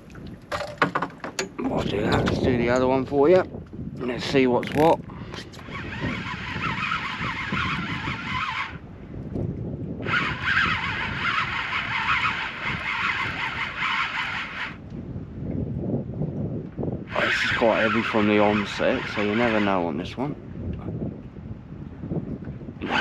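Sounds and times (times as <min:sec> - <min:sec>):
fishing reel gears whirring: 0:04.7 - 0:08.9, 0:10.0 - 0:14.8, 0:17.1 - 0:20.1.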